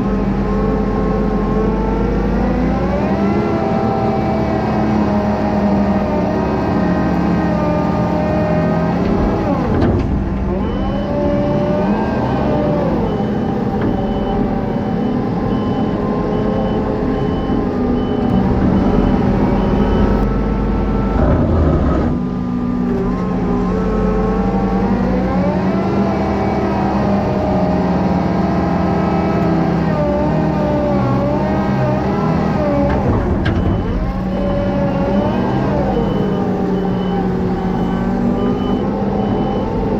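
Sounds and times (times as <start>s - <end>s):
diesel engine under load: 0.0s - 39.9s
reversing alarm beeping: 8.0s - 21.0s, 32.2s - 39.9s.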